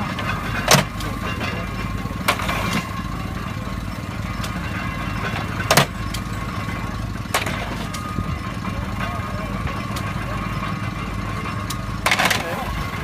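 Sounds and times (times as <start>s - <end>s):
engine running steadily: 0.0s - 13.0s
hay baler sharp knocks: 0.2s - 1.1s.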